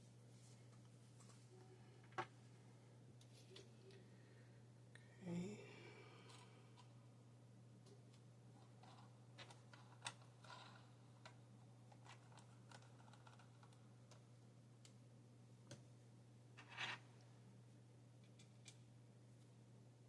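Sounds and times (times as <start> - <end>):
low steady hum: 0.0 - 20.0
small clicks and taps of parts: 18.2 - 18.8.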